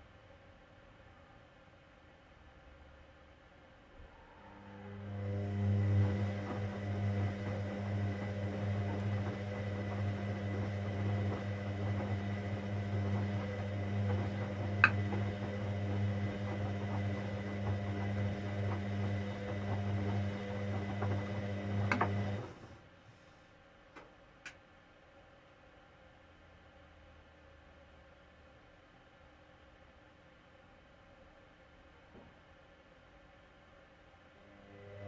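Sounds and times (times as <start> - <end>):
washing machine humming: 4.1 - 22.9, 34.4 - 35.0.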